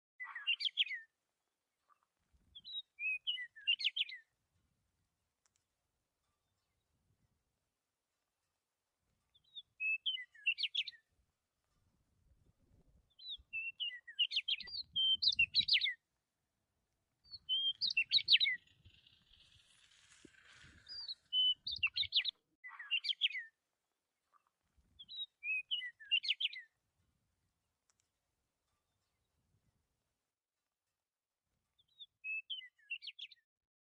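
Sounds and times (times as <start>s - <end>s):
small songbird chirping: 0.2s - 1.1s, 1.9s - 4.3s, 9.3s - 11.1s, 13.1s - 16.0s, 17.2s - 23.5s, 24.3s - 26.7s, 31.8s - 33.4s.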